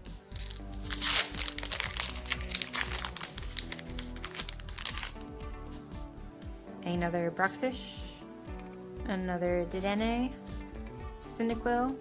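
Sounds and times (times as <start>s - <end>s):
background music: 0.0s - 12.0s
foil wrapper tearing: 0.3s - 5.3s
foil crinkling and clicking: 0.4s - 5.2s.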